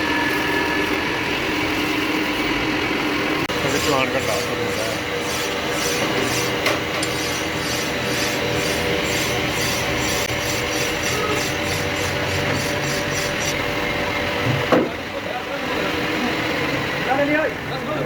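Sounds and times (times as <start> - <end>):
rhythmic rubbing on metal: 3.5 - 13.6.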